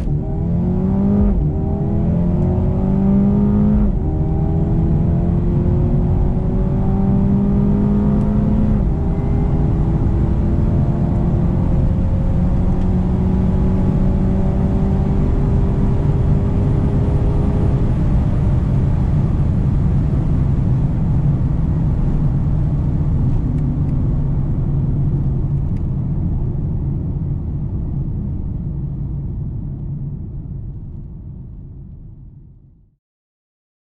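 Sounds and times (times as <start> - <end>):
car engine accelerating hard: 0.0 - 25.8
steady low rumble: 0.0 - 32.9.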